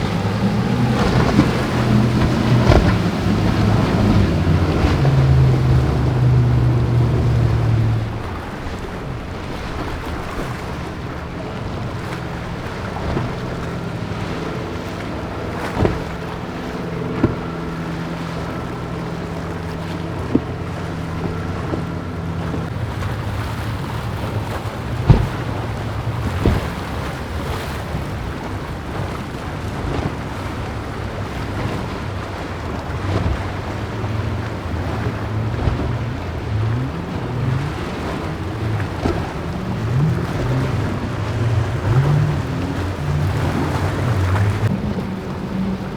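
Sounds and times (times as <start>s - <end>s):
boat engines humming: 0.0s - 45.9s
waves: 0.0s - 45.9s
wind buffeting microphone: 0.0s - 45.9s
sharp thumps: 25.0s - 25.6s.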